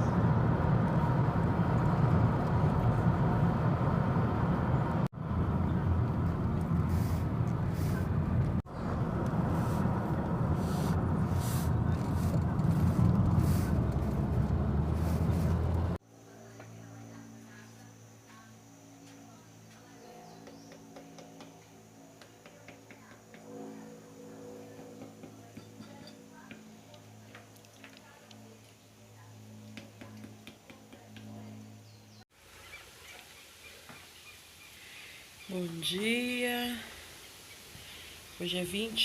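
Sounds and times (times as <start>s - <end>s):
loud low rumbling: 0.0s - 16.0s.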